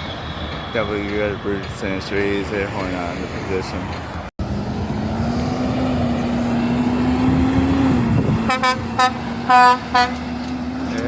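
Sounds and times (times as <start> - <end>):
truck engine drone: 0.0 - 11.0
air horn honks: 8.5 - 10.3.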